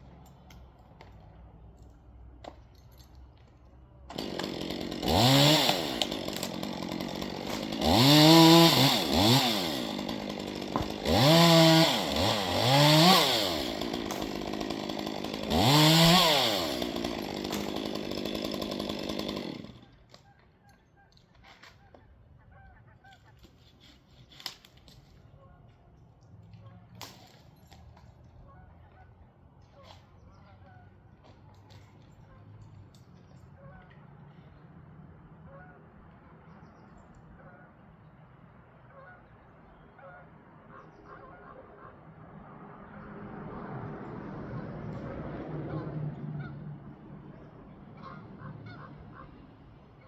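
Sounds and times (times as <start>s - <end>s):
chainsaw revving: 4.1s - 20.0s.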